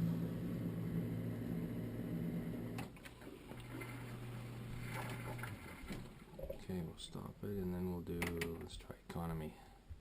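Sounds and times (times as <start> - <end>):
dishwasher humming with water: 0.0 - 6.9.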